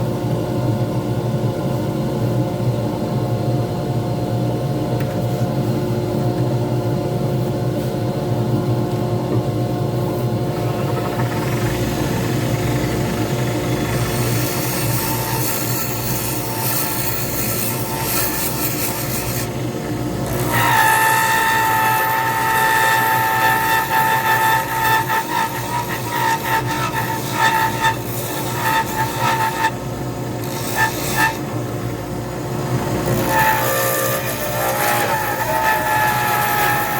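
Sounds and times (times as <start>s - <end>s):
high-pitched whine: 9.4s - 17.4s
lathe motor hum: 9.4s - 36.9s.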